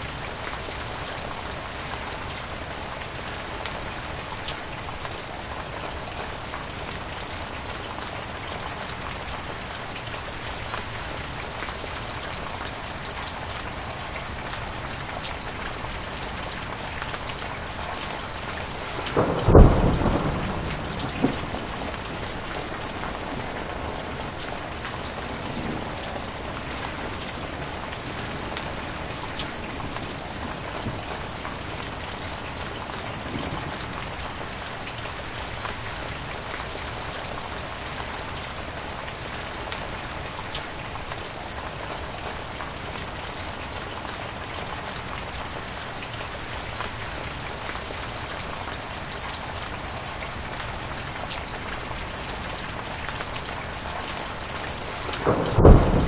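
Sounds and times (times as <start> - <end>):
heavy rain falling: 0.0 - 56.0
thunder cracking and rumbling: 15.9 - 35.6, 52.6 - 56.0.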